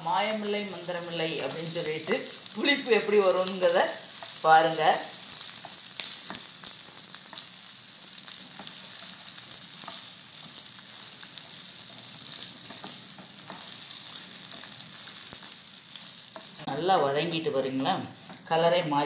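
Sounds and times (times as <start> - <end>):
chillies sizzling in oil: 0.0 - 19.0
spatula tapping and scraping: 5.0 - 6.6, 7.2 - 16.6.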